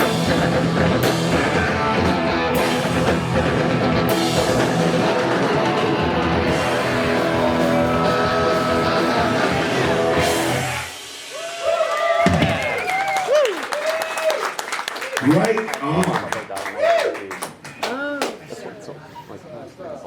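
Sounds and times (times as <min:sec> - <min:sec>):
rock band playing: 0:00.0 - 0:13.1
crowd shouting and whooping: 0:07.0 - 0:14.6.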